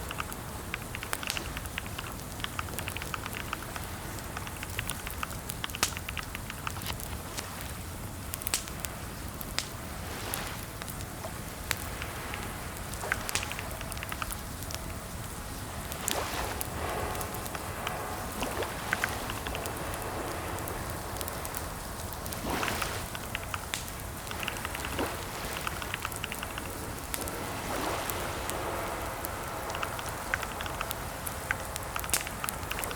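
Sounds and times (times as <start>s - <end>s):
crackling hiss: 0.0s - 32.9s
keyboard typing: 0.1s - 3.8s, 25.6s - 26.7s.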